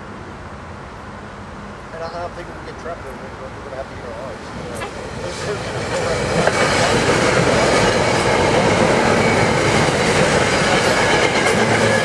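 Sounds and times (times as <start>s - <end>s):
train wheels rushing on rail: 2.0s - 12.0s
rail-joint clickety-clack: 4.4s - 12.0s.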